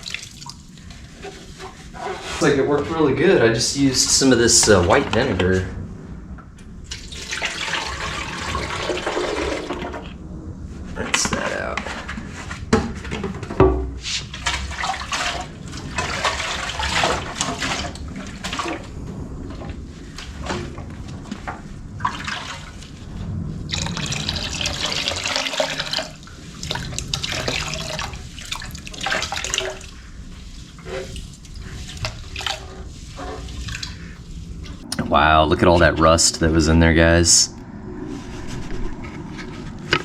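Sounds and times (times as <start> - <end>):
water running and splashing: 0.0 - 2.6, 6.8 - 10.2, 14.2 - 34.8.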